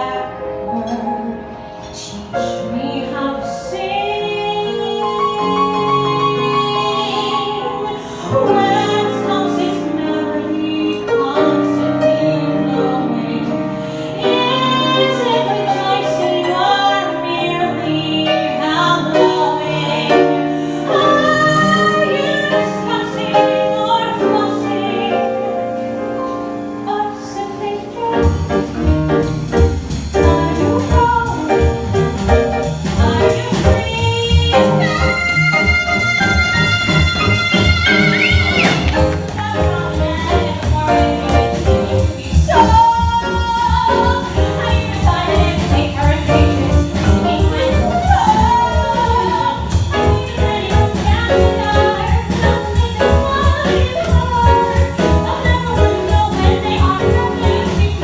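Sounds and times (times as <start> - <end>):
instrumental accompaniment: 0.0 - 58.0
woman singing jazz: 0.0 - 58.0
drums and bass: 27.5 - 58.0.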